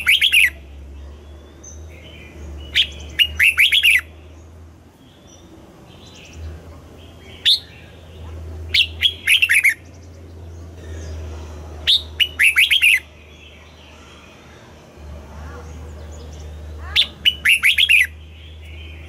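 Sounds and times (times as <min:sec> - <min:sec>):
bird whistling song: 0:00.0 - 0:00.7, 0:01.6 - 0:04.1, 0:07.3 - 0:07.9, 0:08.7 - 0:09.9, 0:11.8 - 0:13.6, 0:16.9 - 0:19.0
faint bird chirps: 0:07.1 - 0:19.0.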